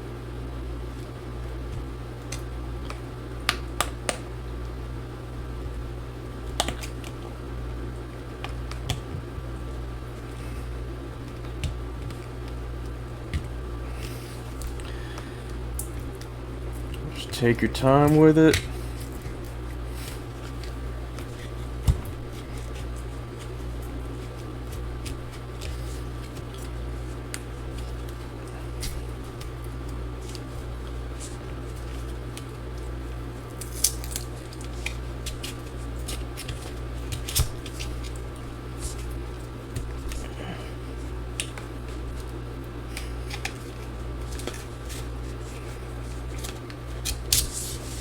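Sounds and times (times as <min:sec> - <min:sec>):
steady low hum: 0:00.0 - 0:48.0
plastic cards scraping and clicking: 0:11.2 - 0:48.0.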